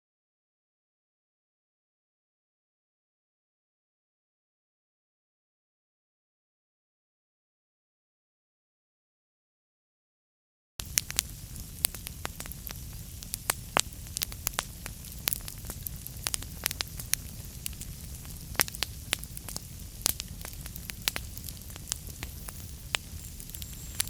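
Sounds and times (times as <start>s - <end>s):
low rumble and hiss: 10.8s - 24.0s
wood fire crackling: 10.8s - 24.0s.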